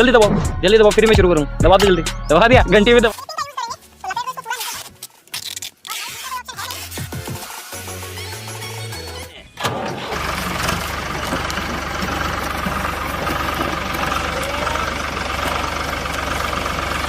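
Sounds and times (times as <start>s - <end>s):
tractor engine starting and idling: 9.1s - 17.0s.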